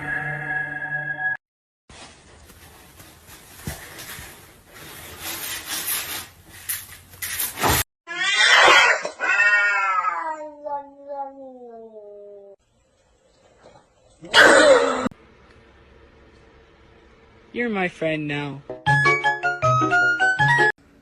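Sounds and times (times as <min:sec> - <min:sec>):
cat yowling: 0:08.1 - 0:12.2.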